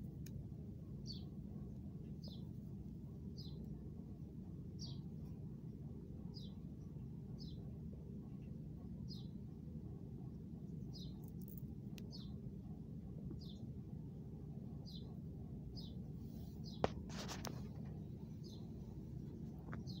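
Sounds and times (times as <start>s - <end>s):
low background rumble: 0.0s - 20.0s
small bird chirping: 1.0s - 1.4s, 2.0s - 2.5s, 3.3s - 3.8s, 4.7s - 5.1s, 6.3s - 7.7s, 8.3s - 9.4s, 10.6s - 12.4s, 13.4s - 13.8s, 14.8s - 16.0s, 16.6s - 17.0s, 18.3s - 20.0s.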